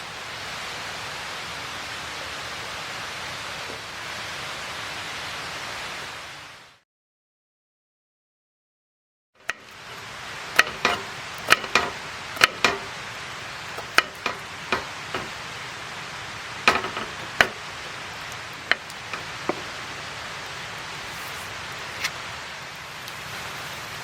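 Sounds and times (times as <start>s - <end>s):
campfire crackling: 9.4s - 23.6s.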